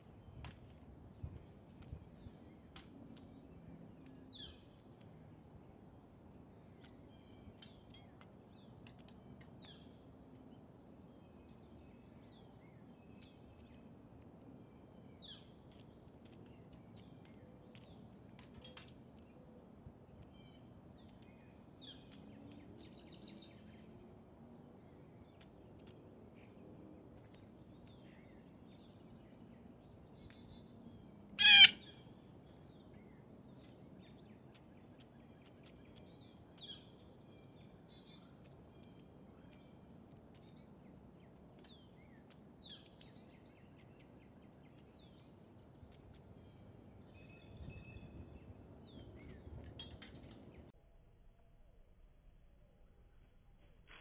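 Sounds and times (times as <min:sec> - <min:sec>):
harsh bird call: 0:31.4 - 0:32.0.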